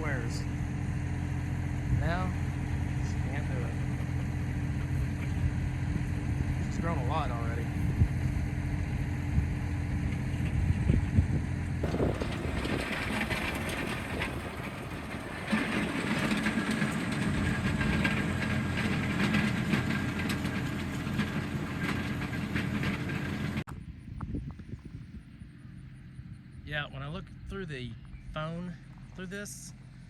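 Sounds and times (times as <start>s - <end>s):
tractor engine running: 0.0s - 30.0s
dense rattling clatter: 11.8s - 23.6s.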